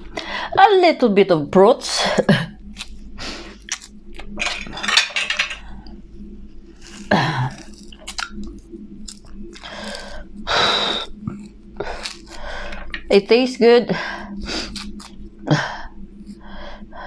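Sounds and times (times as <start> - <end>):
person chewing food: 2.6 - 4.4, 6.8 - 10.2, 10.9 - 13.1, 14.6 - 15.3
wet mouth clicks: 7.6 - 9.7.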